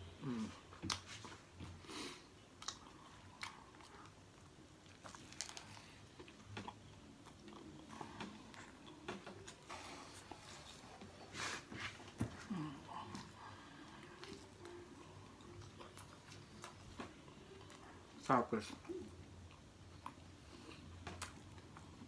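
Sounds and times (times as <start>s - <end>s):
person chewing crunchy food: 0.2s - 11.2s.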